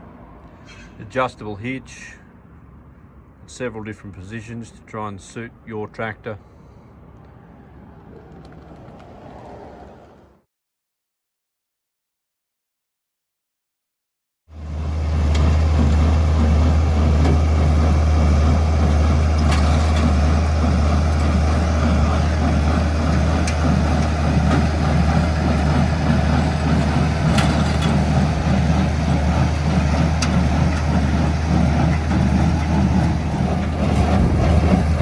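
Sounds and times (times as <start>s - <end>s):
baler and tractor drone: 14.5s - 35.0s.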